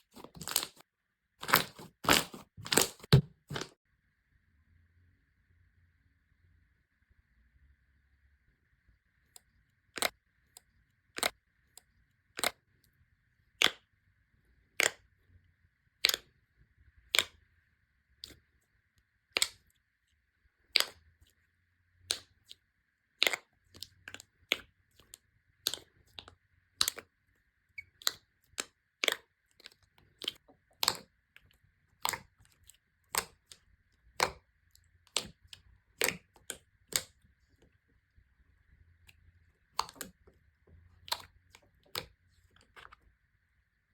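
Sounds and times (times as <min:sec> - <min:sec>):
slime clicking and popping: 0:01.4 - 0:03.6, 0:12.4 - 0:12.6, 0:16.0 - 0:16.4, 0:17.1 - 0:17.4, 0:20.7 - 0:21.0, 0:23.2 - 0:27.1, 0:27.8 - 0:37.2, 0:39.7 - 0:40.3, 0:41.0 - 0:42.8.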